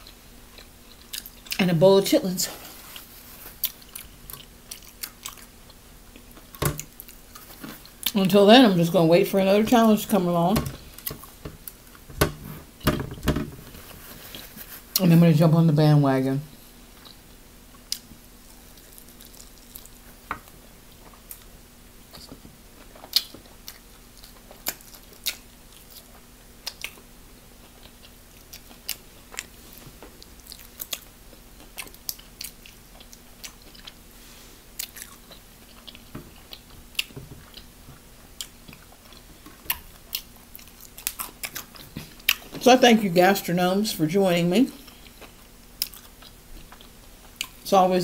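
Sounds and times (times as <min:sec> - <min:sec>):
person chewing food: 0:00.0 - 0:01.6, 0:02.6 - 0:08.2, 0:10.7 - 0:12.6, 0:16.9 - 0:42.5, 0:44.7 - 0:47.6.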